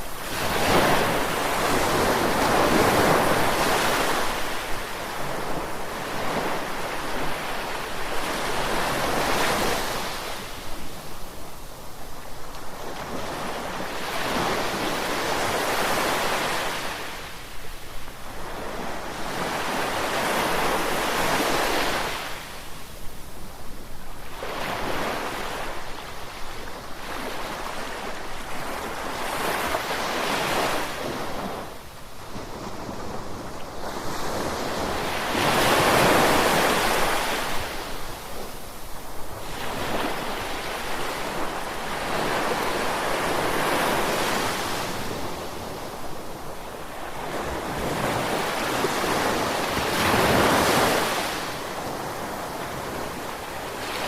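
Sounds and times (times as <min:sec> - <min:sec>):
ocean waves crashing: 0:00.0 - 0:10.4, 0:33.8 - 0:54.0.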